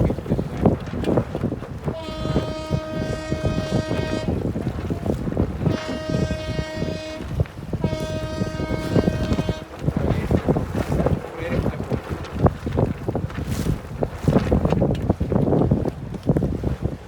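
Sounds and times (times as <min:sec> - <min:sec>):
wind noise: 0:00.0 - 0:17.0
long horn blasts: 0:01.8 - 0:10.4.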